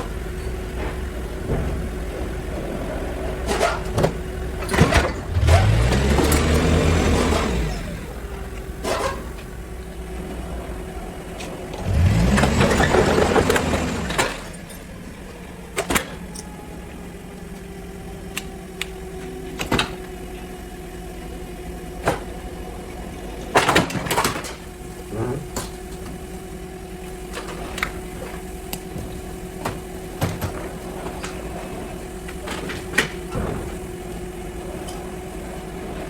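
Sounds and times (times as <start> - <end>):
steady mechanical hum: 0.0 - 36.0
engine revving: 0.8 - 14.7.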